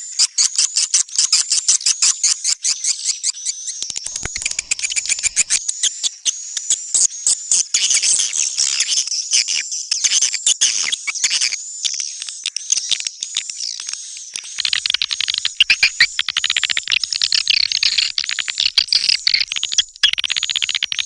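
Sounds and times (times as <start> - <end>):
swiftlet calls chittering: 4.1 - 5.6, 14.6 - 21.0.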